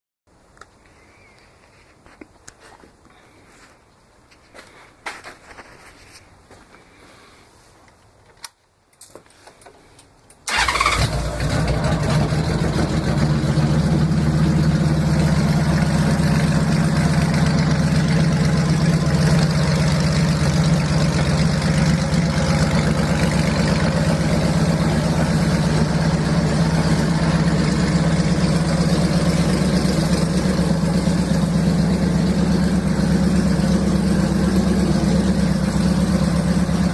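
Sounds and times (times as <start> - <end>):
motorcycle engine starting and idling: 10.4 - 36.9.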